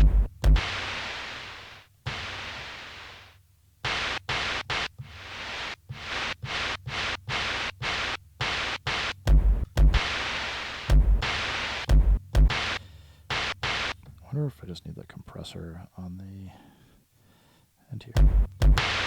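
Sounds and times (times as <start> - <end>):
kick drum thumps: 0.0 - 0.7, 9.3 - 10.1, 10.9 - 12.7, 18.2 - 18.9
white noise percussion hits: 8.4 - 14.0, 18.2 - 19.0.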